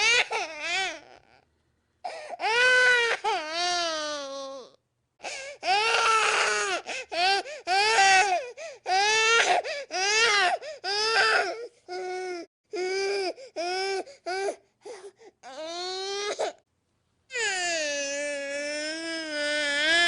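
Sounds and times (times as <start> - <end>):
infant crying: 0.0 - 1.4, 2.1 - 16.6, 17.3 - 20.0.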